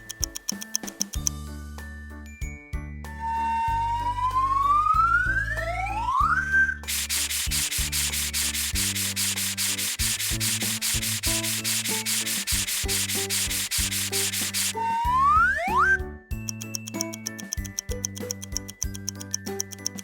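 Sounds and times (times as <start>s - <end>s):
music backing: 0.0s - 20.0s
rising whistle glide: 3.4s - 7.6s, 14.2s - 16.0s
cartoon scrubbing sound: 6.9s - 14.8s.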